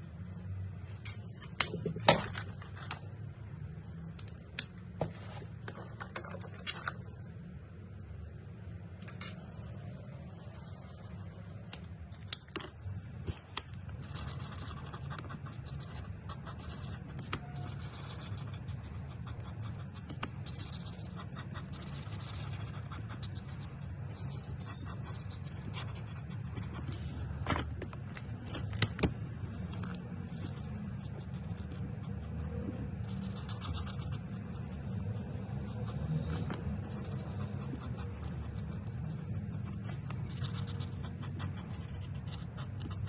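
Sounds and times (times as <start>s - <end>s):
steady low hum: 0.0s - 43.0s
marker tips scratching paper: 13.3s - 43.0s.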